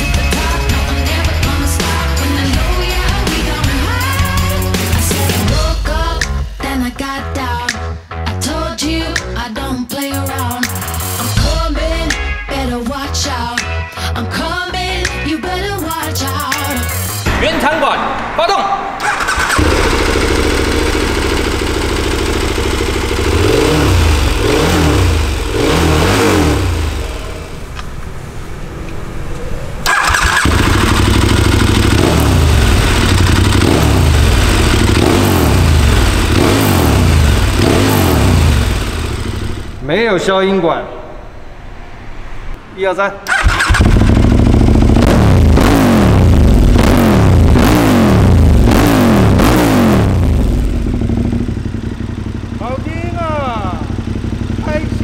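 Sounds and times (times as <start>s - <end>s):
motorcycle engine idling: 19.0s - 27.8s, 29.9s - 39.8s, 43.3s - 45.1s, 50.2s - 55.0s
motorcycle engine revving: 19.0s - 39.8s, 43.3s - 55.0s.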